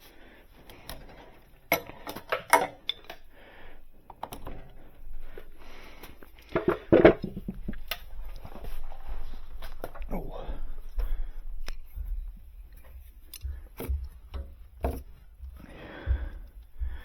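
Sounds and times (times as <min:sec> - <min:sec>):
metal tools clinking: 0:00.9 - 0:03.3.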